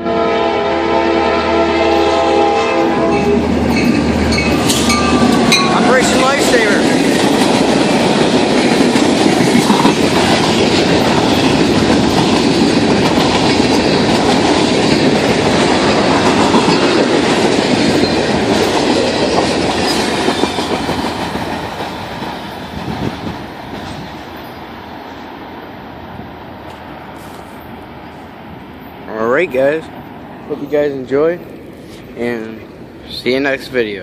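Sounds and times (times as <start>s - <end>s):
train wheels clicking over rails: 3.5s - 24.6s.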